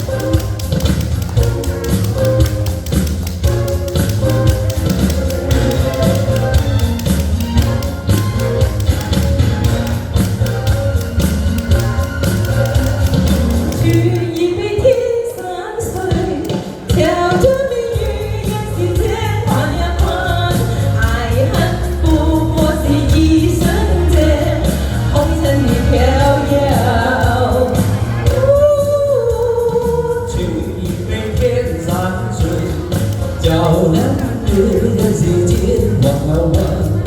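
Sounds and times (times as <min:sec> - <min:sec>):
backing track with bass pulse: 0:00.0 - 0:15.0, 0:16.1 - 0:37.0
person singing pop ballad: 0:11.2 - 0:37.0.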